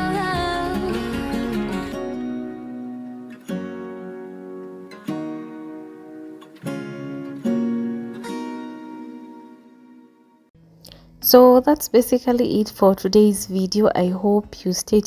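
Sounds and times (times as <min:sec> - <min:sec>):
acoustic guitar strumming chords: 0:00.0 - 0:11.4.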